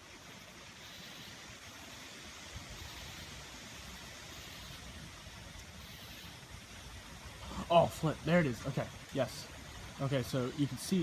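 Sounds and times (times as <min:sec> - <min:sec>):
thunderstorm hiss: 0:00.0 - 0:11.0.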